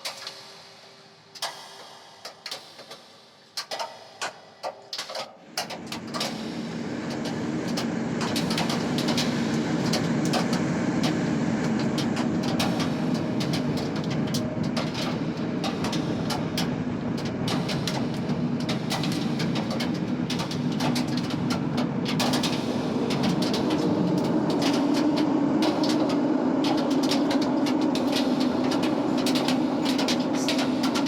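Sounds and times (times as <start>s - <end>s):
steady rain downpour: 4.9s - 31.0s
raindrops clicking: 7.1s - 31.0s.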